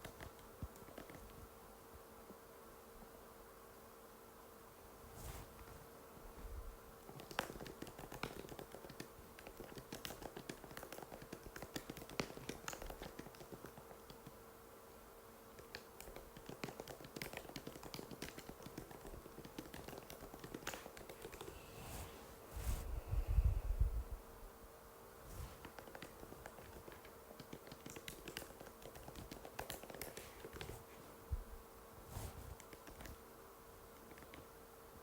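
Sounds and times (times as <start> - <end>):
faint steady hum: 0.0 - 35.0
keyboard typing clicks: 7.2 - 14.3, 15.6 - 21.6, 25.6 - 30.8.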